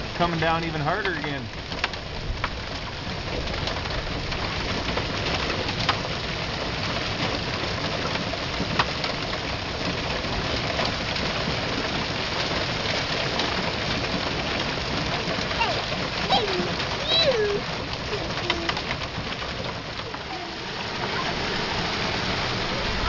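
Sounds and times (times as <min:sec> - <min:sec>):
hail pelting down: 0:00.0 - 0:23.0.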